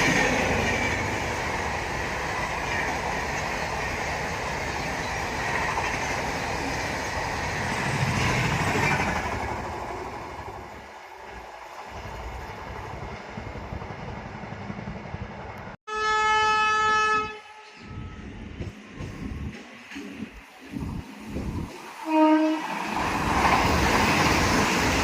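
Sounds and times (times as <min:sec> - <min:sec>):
train wheels rushing on rails: 0:00.0 - 0:15.8, 0:17.9 - 0:25.0
train horn blast: 0:15.9 - 0:18.3, 0:22.0 - 0:22.8.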